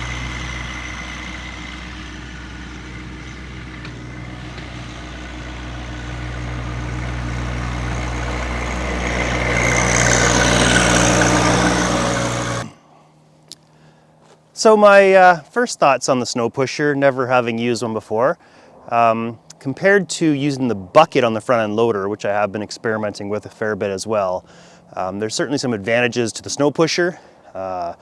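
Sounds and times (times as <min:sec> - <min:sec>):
tractor diesel engine running: 0:00.0 - 0:12.8.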